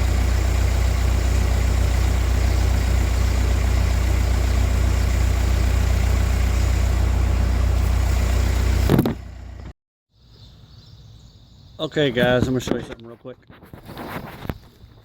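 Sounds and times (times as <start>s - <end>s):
engine humming: 0.0s - 9.7s.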